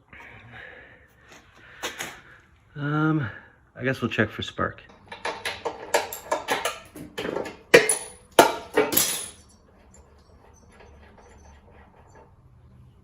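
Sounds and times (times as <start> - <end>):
metal tools clinking: 4.9 - 11.0.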